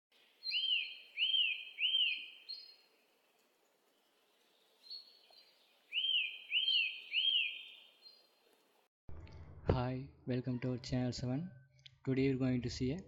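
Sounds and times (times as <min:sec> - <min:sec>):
bird chirping: 0:00.2 - 0:08.6.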